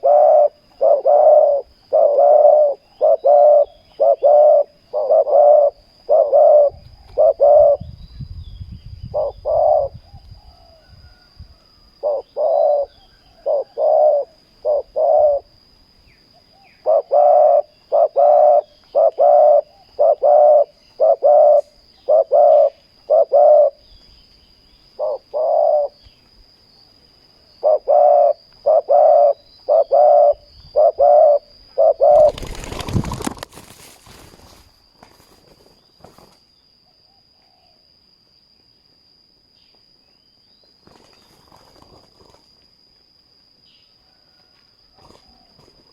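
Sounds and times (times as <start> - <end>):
dove cooing: 0.0 - 8.0, 9.0 - 11.3, 12.0 - 15.5, 16.5 - 23.9, 25.0 - 26.0, 27.6 - 33.4
faint high whine: 0.0 - 45.9.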